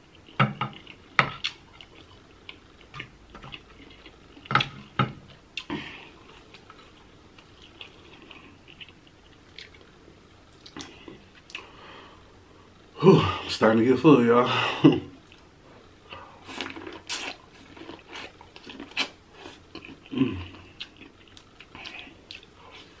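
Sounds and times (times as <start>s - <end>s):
person chewing wetly: 0.1s - 4.8s, 5.6s - 9.9s, 10.5s - 11.7s, 16.4s - 23.0s.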